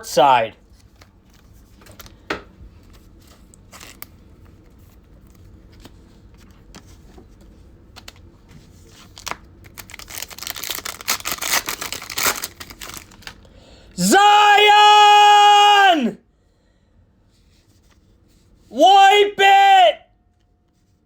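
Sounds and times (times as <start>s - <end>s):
card pack wrapper tearing and crinkling: 3.6s - 4.1s, 9.0s - 13.5s.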